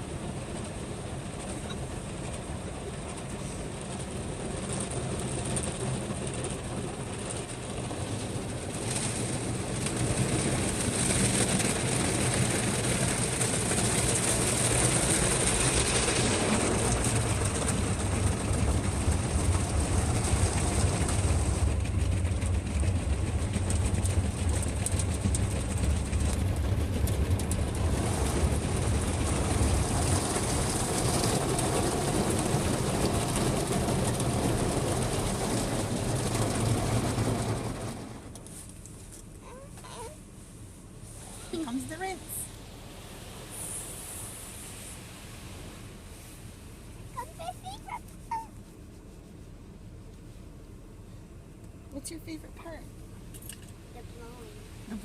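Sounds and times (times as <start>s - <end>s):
car wash machinery rumbling: 0.0s - 55.0s
car wash spray hissing: 39.5s - 48.2s.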